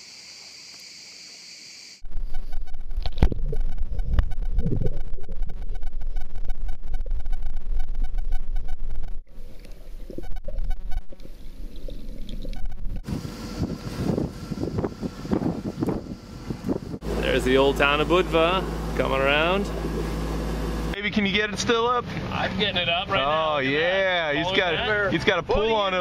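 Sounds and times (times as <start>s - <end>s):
wind buffeting microphone: 13.0s - 17.1s.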